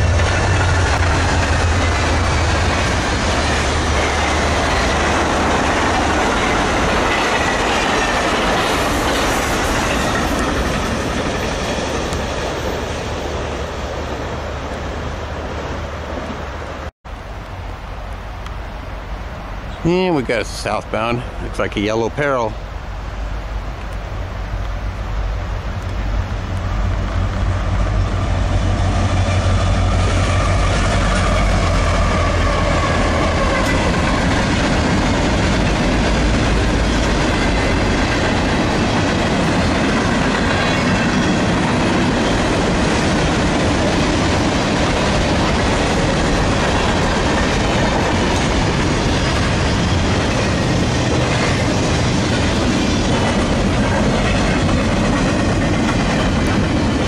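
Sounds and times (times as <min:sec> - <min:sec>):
diesel freight train passing: 0:00.0 - 0:57.0
freight cars rolling on rails: 0:00.0 - 0:57.0.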